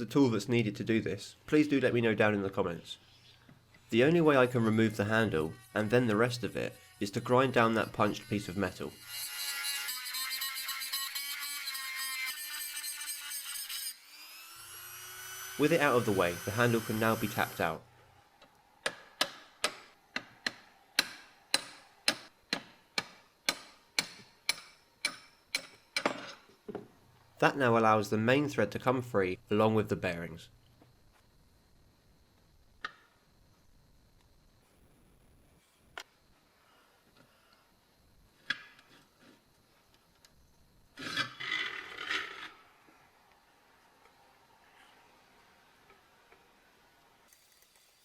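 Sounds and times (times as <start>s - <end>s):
hammer tapping on steel: 18.8s - 26.1s.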